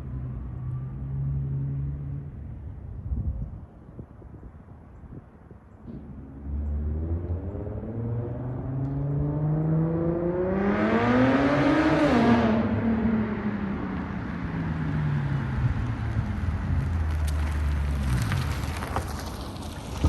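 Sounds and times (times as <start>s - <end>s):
car engine accelerating: 5.9s - 19.6s.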